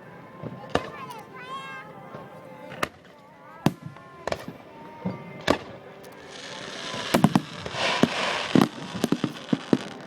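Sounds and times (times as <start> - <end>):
fireworks bangs: 0.0 - 10.0
fireworks crackling: 0.0 - 10.0.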